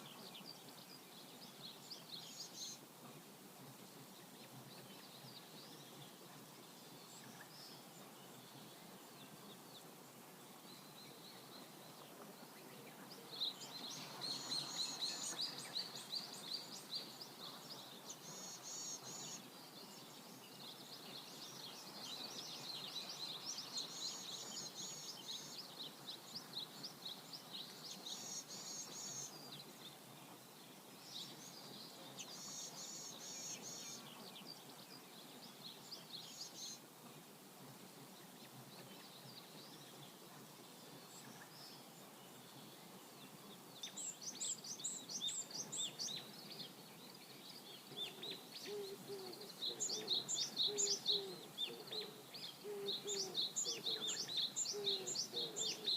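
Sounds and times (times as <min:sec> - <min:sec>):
birds chirping and singing: 0:43.5 - 0:55.9.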